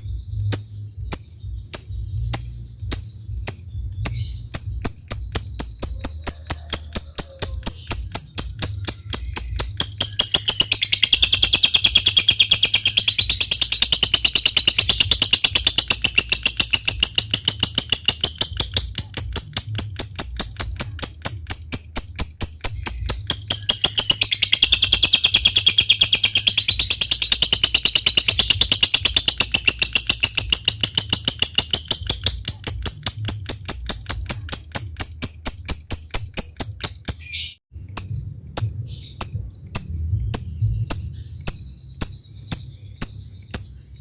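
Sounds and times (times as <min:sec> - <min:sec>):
bird chattering high notes: 0:00.6 - 0:43.9.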